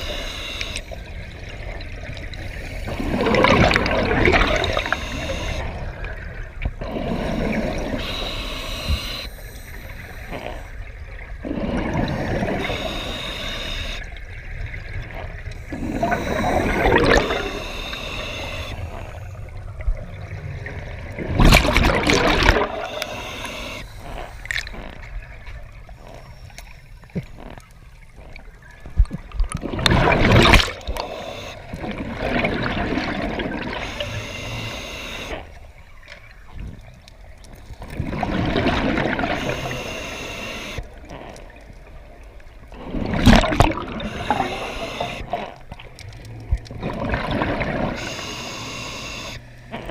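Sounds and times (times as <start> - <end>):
hissing regulator inhalations: 0.0 - 1.0, 2.3 - 5.8, 6.8 - 10.8, 11.5 - 14.1, 15.5 - 19.5, 22.0 - 25.1, 30.7 - 31.8, 33.6 - 35.5, 39.2 - 40.8, 43.9 - 45.5, 47.9 - 49.9
gurgling bubble bursts: 2.9 - 4.9, 15.1 - 17.5, 20.6 - 22.9, 29.6 - 31.0, 42.8 - 44.4.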